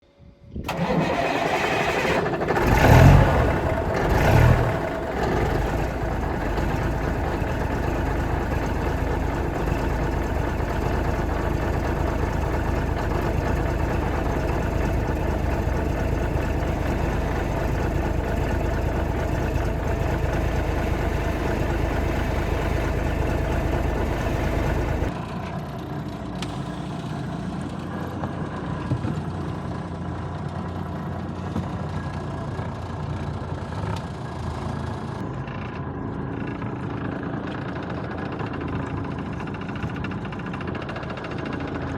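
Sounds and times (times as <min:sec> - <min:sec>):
diesel truck engine running: 0:00.6 - 0:25.2.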